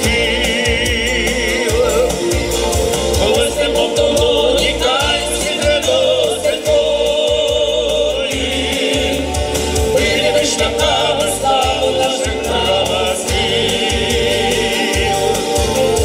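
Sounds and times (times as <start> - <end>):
accompaniment with bass beat: 0.0 - 16.0
people singing: 0.0 - 16.0.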